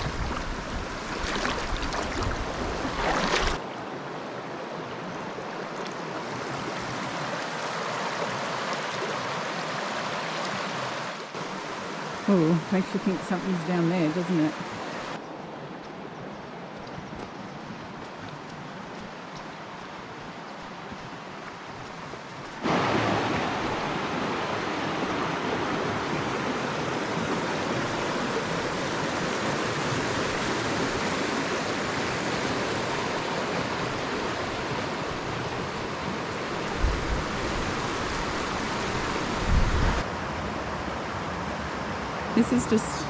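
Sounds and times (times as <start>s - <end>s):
water rushing over rocks: 0.0s - 3.9s, 4.9s - 15.2s, 18.4s - 40.0s.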